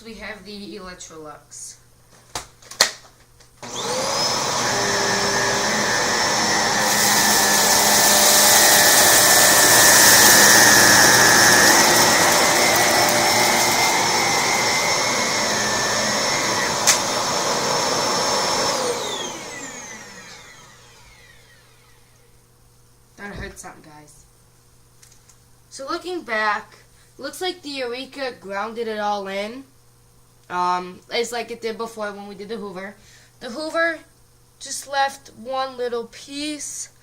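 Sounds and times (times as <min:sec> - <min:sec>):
upright vacuum cleaner running: 0:03.6 - 0:22.2.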